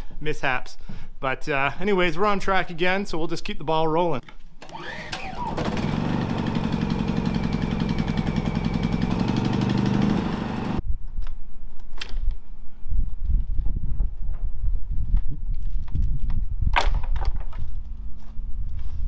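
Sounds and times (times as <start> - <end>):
engine running with fast pulse: 4.7 - 10.8.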